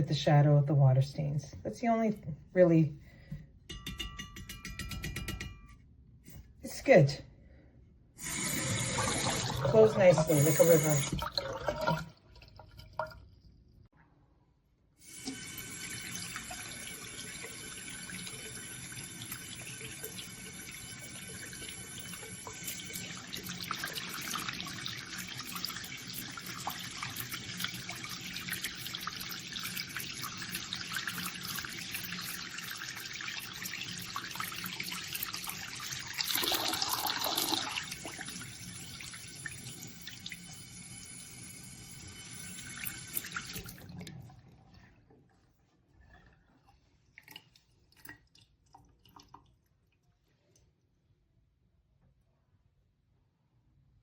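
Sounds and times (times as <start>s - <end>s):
faucet water running into sink: 8.2s - 13.2s, 15.0s - 44.4s.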